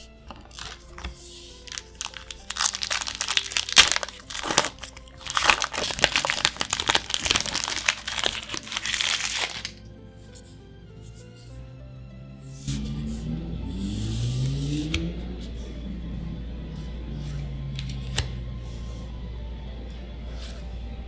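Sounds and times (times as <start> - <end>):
foil wrapper crinkling: 0.0 - 9.8
soft background music: 0.0 - 21.0.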